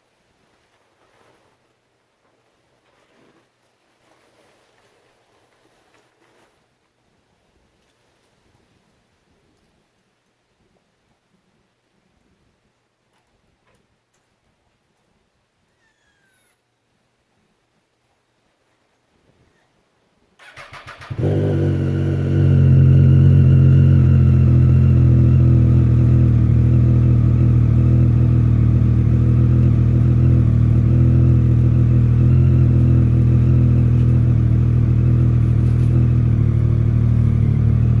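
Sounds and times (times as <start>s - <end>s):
engine starter cranking: 20.4s - 21.2s
motorcycle engine idling: 20.5s - 38.0s.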